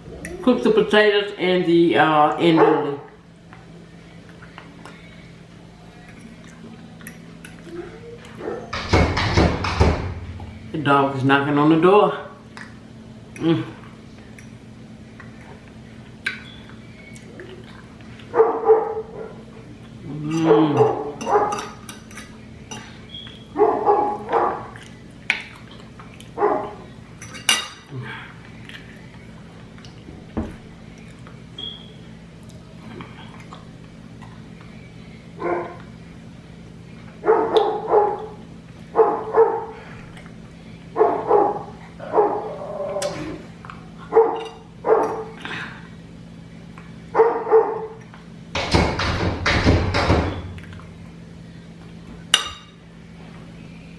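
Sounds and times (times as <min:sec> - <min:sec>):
dog barking: 0:02.6 - 0:03.1, 0:18.4 - 0:19.4, 0:20.8 - 0:21.6, 0:23.6 - 0:24.7, 0:26.4 - 0:26.8, 0:35.4 - 0:35.8, 0:37.2 - 0:38.4, 0:39.0 - 0:39.8, 0:41.0 - 0:43.2, 0:44.1 - 0:45.4, 0:47.2 - 0:48.0
thumping and rattling at a door: 0:08.7 - 0:10.6, 0:48.5 - 0:50.7
cutlery clinking on a plate: 0:20.3 - 0:23.0.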